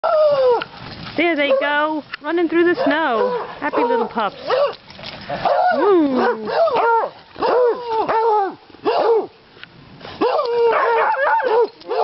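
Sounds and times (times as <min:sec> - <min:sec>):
beagles baying: 0:10.2 - 0:12.0.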